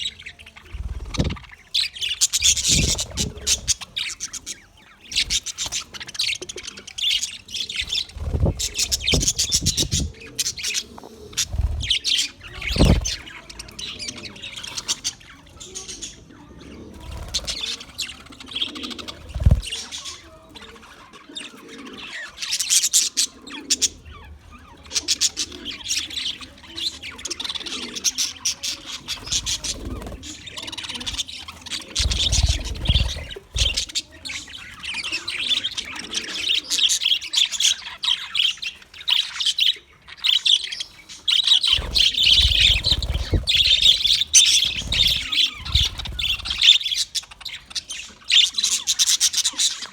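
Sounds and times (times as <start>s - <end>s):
budgerigar chattering and warbling: 0.0s - 49.9s
low thumps: 8.2s - 10.2s, 12.5s - 13.2s.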